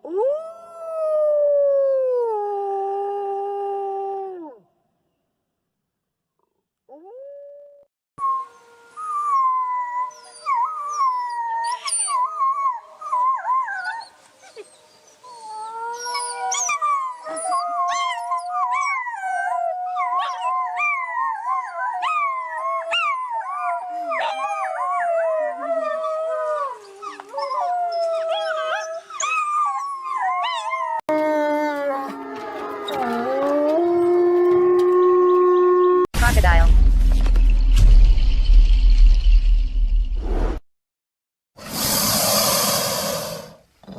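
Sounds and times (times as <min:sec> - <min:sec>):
wolves howling: 0:08.5 - 0:36.1
wolves yipping: 0:09.4 - 0:12.3, 0:13.2 - 0:31.0.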